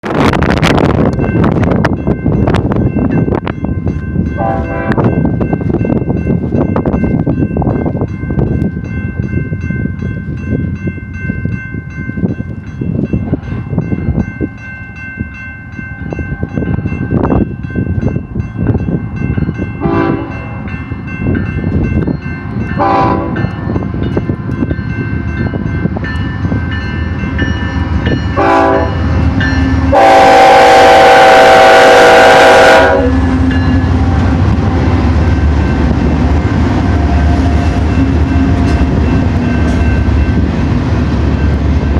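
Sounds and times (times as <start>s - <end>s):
freight train rumbling past: 0.0s - 41.9s
locomotive horn blasts: 4.4s - 5.1s, 19.8s - 20.7s, 22.8s - 23.5s, 28.3s - 29.0s, 29.8s - 34.3s.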